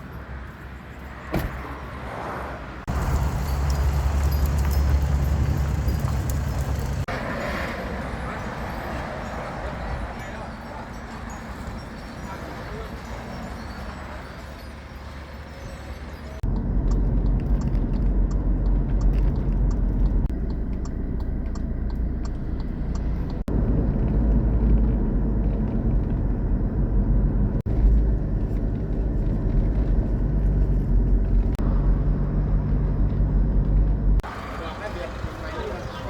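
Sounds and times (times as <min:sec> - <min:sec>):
vehicle engine and road rumble: 0:00.0 - 0:36.0
faint regular ticking: 0:16.5 - 0:23.5.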